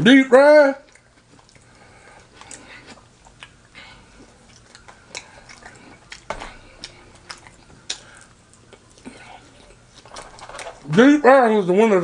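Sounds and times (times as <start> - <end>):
chewing with wet mouth smacks: 0.8 - 10.2.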